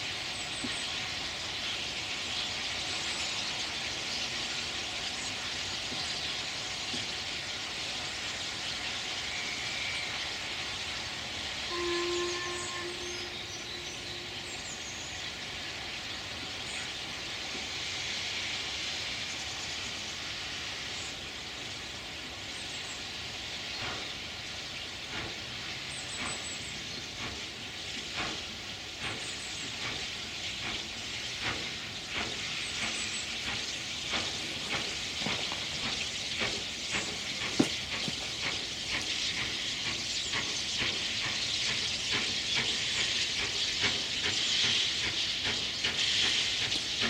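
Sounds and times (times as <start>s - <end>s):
steam locomotive hissing: 0.0s - 47.0s
locomotive whistle: 9.2s - 10.7s, 11.6s - 15.2s
sharp exhaust beats: 31.4s - 46.8s.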